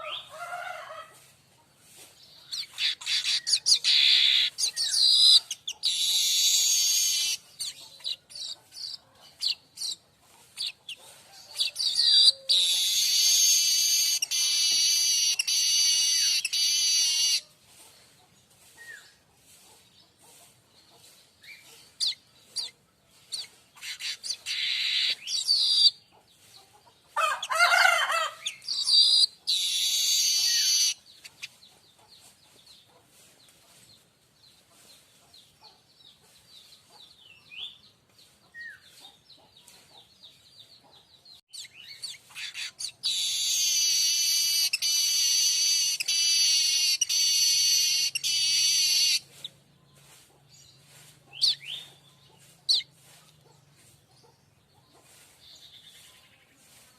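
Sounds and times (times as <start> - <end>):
bird high chattering: 2.5 - 10.0, 11.6 - 17.5, 23.3 - 26.0, 28.4 - 31.6, 41.5 - 49.2
bird buzzing wheezy phrase: 12.6 - 17.4, 43.1 - 49.2.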